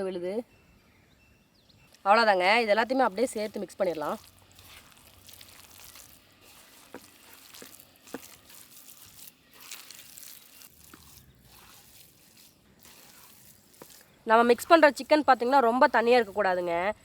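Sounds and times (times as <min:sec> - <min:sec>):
hands squishing minced meat: 0:02.6 - 0:16.7.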